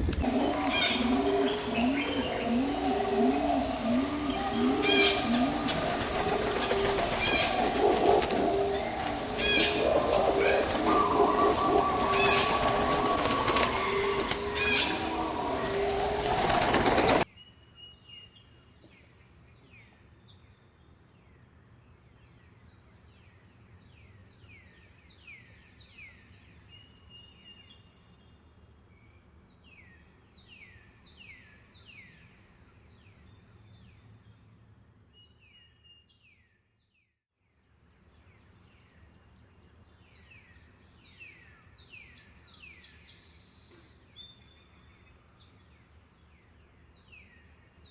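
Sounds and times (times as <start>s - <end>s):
birds singing: 0.0s - 17.3s
dense loud bird sound: 0.0s - 17.3s
high-pitched insect drone: 0.2s - 17.2s.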